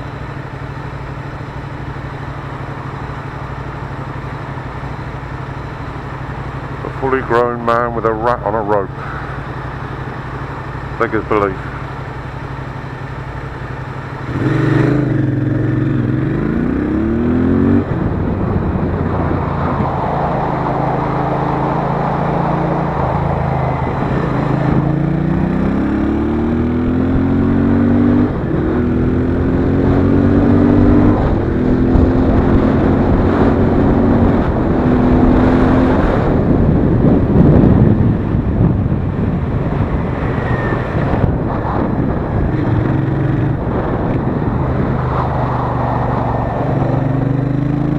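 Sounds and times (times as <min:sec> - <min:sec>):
motorcycle engine accelerating: 0:00.0 - 0:47.9
wind noise: 0:14.3 - 0:47.9.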